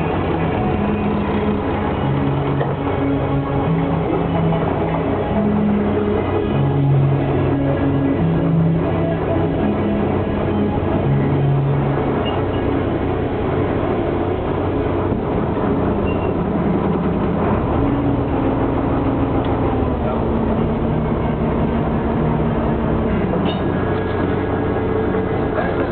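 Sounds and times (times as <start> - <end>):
boat engine running: 0.0 - 25.9.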